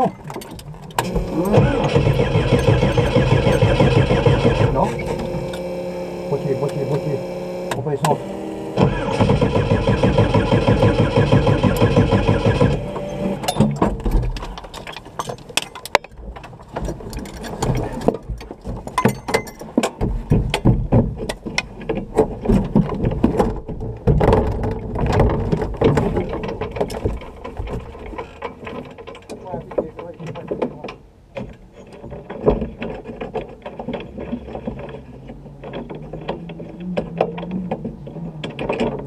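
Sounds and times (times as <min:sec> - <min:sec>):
engine turning over: 0:01.0 - 0:15.0
clicks and knocks in cockpit: 0:13.4 - 0:39.0.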